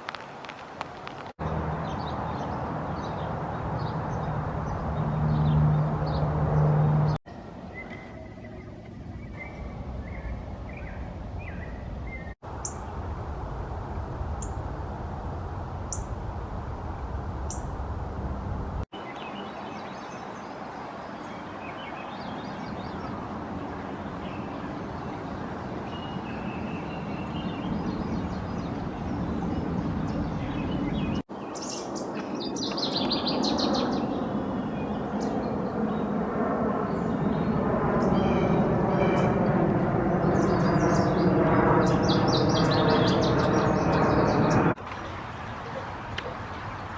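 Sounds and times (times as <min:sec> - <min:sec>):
songbirds singing and calling: 0:01.4 - 0:12.9, 0:17.5 - 0:17.8, 0:19.0 - 0:36.2, 0:36.9 - 0:39.6, 0:40.2 - 0:46.9
bird trill: 0:07.6 - 0:12.9
background hiss and rumble: 0:09.2 - 0:18.8.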